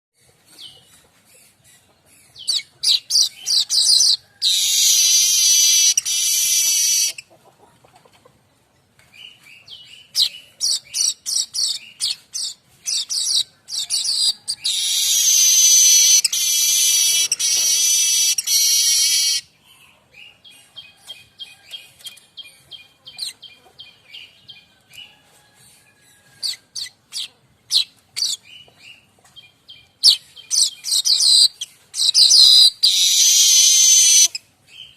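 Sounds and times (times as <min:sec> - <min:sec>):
bird chirping: 0:00.2 - 0:07.4, 0:08.7 - 0:34.9
harsh buzzing bird trill: 0:03.8 - 0:07.2, 0:14.7 - 0:19.4, 0:32.0 - 0:34.4.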